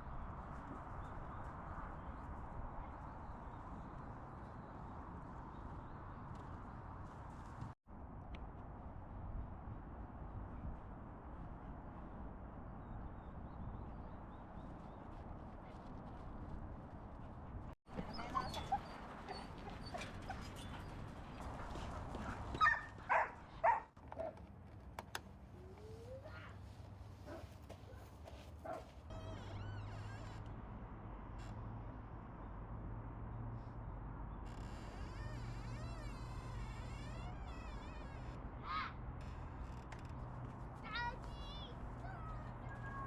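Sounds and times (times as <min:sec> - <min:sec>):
dog whimpering and yipping: 0:25.6 - 0:26.6.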